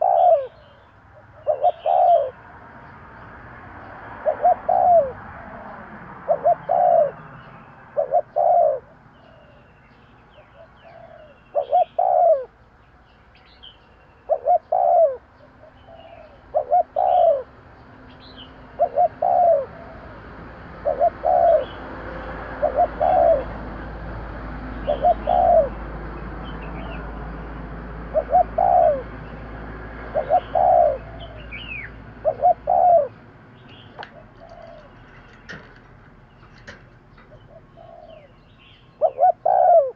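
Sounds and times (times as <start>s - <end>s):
dove cooing: 0.0s - 2.4s, 4.1s - 9.7s, 10.4s - 12.6s, 14.3s - 17.6s, 18.6s - 24.0s, 24.6s - 25.9s, 28.0s - 39.9s.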